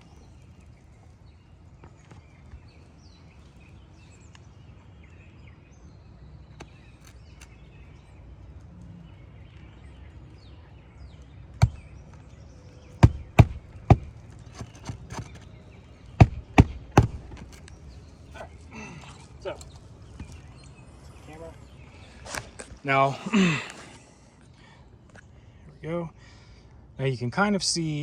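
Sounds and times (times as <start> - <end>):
hammer driving nails into shingles: 13.0 - 15.4, 16.2 - 17.7.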